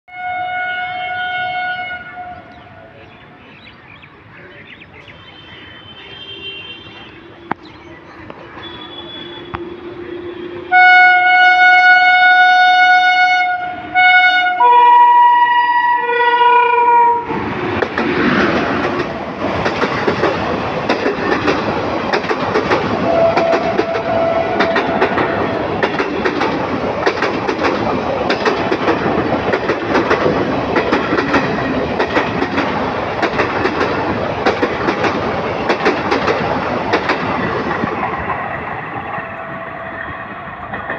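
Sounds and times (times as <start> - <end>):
train horn blasts: 0.1 - 3.0, 5.4 - 7.6, 8.6 - 17.4, 22.9 - 25.7
train wheels clickety-clack: 17.4 - 40.9.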